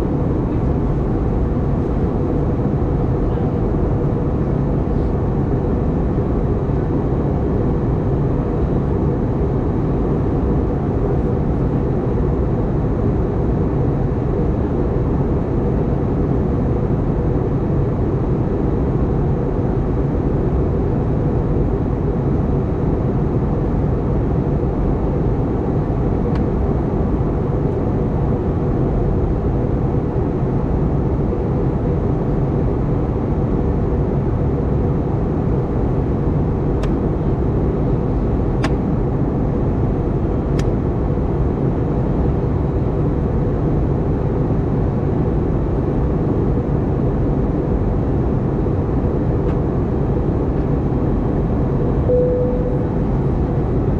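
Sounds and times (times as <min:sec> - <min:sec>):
airplane cabin rumble and airflow: 0:00.0 - 0:53.9
faint steady hum: 0:00.0 - 0:53.9.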